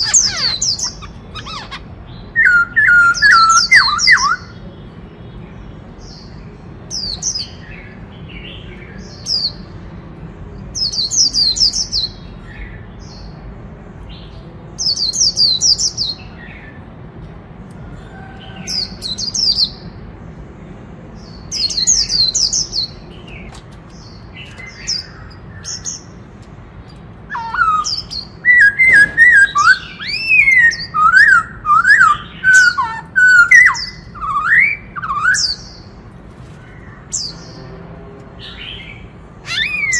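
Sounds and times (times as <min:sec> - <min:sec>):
bird squeaky high notes: 0:00.0 - 0:04.5, 0:27.3 - 0:35.6
bird fluted whistles: 0:27.3 - 0:35.6.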